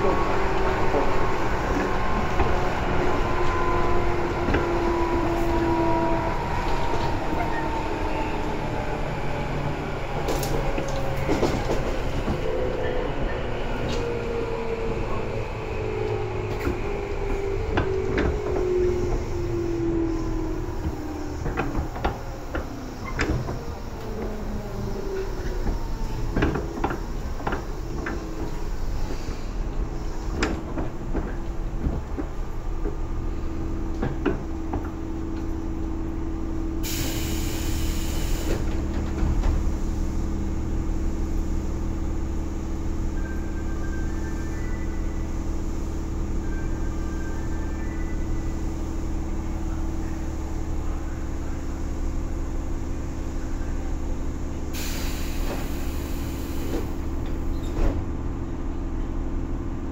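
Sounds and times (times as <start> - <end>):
steady train hum: 0.0 - 59.9
hiss of air: 36.8 - 38.7, 54.7 - 57.0.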